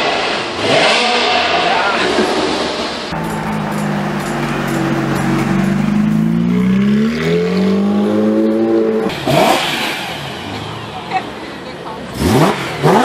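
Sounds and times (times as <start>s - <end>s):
sports car engine revving: 3.1s - 10.4s, 12.1s - 13.0s.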